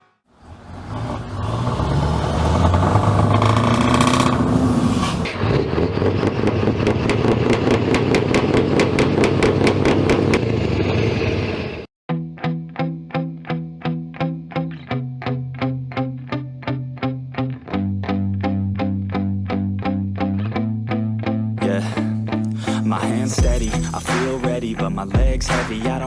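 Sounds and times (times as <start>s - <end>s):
diesel engine revving: 0.3s - 11.9s
rapid engine ticking: 5.4s - 10.6s
plucked guitar music: 12.1s - 26.0s.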